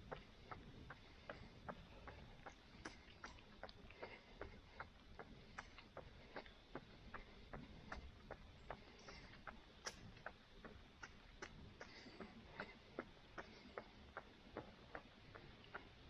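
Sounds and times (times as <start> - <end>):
running footsteps on road: 0.0 - 16.0.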